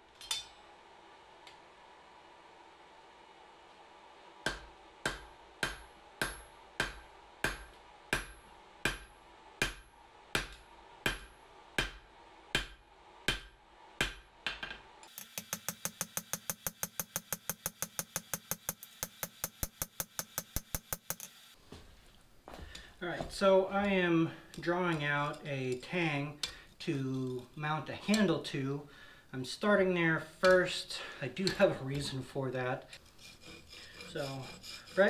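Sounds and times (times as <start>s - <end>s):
hammer striking steel on anvil: 0.2s - 0.6s, 4.4s - 14.6s.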